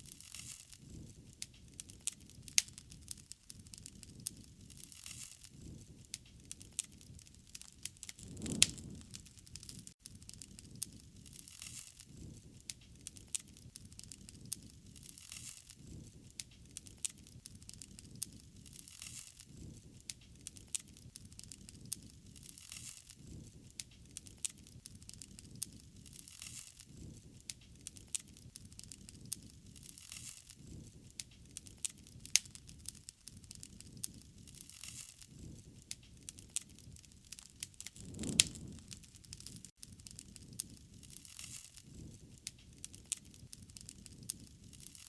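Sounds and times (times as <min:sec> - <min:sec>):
wood fire crackling and popping: 0:00.0 - 0:45.0
low flame rush: 0:07.8 - 0:09.9, 0:37.8 - 0:39.7.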